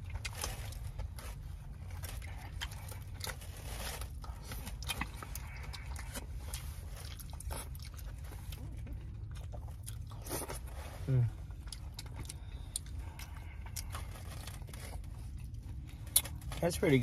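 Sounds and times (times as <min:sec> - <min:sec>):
person chewing: 0:00.0 - 0:16.6
steady low hum: 0:00.0 - 0:17.0.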